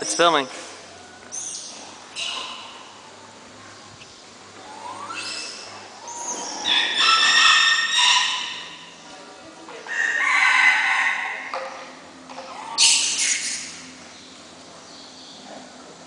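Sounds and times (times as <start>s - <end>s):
rooster crowing: 9.9s - 11.5s.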